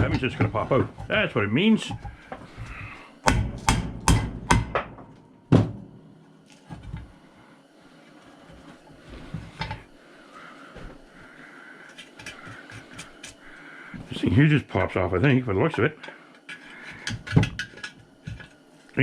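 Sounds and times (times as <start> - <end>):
hammer striking metal: 3.3 - 5.1.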